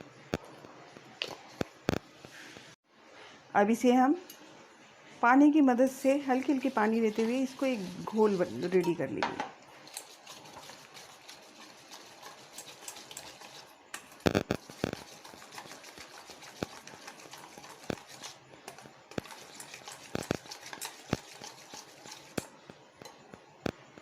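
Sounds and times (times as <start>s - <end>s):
batter being stirred: 5.9s - 23.6s.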